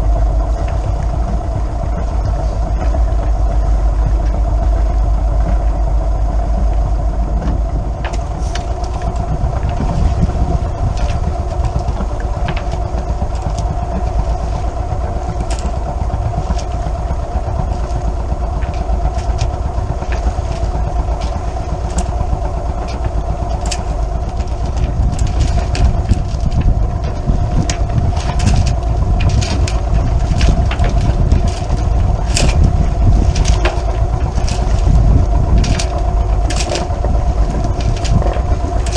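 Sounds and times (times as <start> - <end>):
boat engine running: 0.0 - 38.9
wind on microphone: 0.0 - 38.9
sharp clicks and knocks: 17.6 - 38.9.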